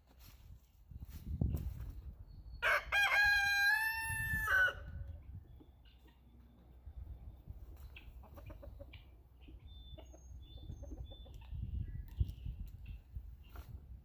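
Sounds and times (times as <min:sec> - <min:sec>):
wind rumbling on microphone: 0:00.2 - 0:05.8, 0:06.8 - 0:14.0
chickens clucking: 0:05.0 - 0:13.9.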